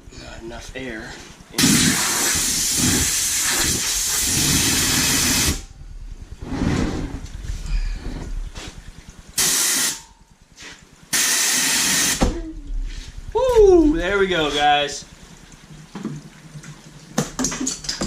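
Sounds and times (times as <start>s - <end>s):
gas hissing out of tire: 1.6s - 5.7s, 9.4s - 10.0s, 10.6s - 12.2s.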